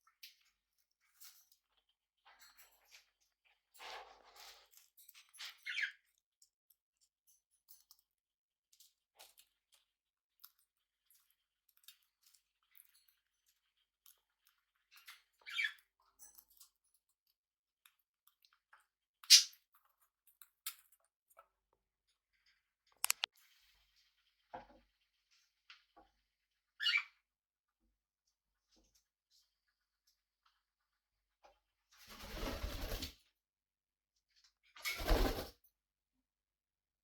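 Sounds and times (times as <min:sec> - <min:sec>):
parrots pecking and chewing: 0:00.1 - 0:26.4
parrot chirps: 0:26.8 - 0:27.2.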